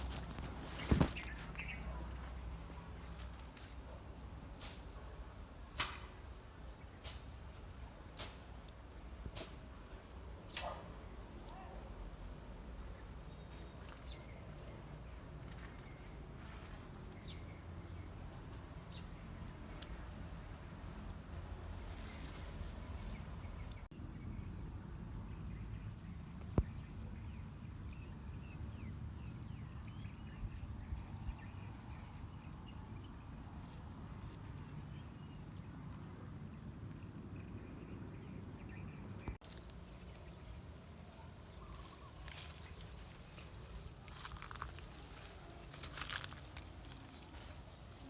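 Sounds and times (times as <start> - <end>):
outdoor background noise: 0.0 - 48.0
bird chirping: 11.4 - 11.8, 12.9 - 16.2, 17.2 - 18.1, 18.9 - 19.8, 21.0 - 21.3, 22.0 - 23.9.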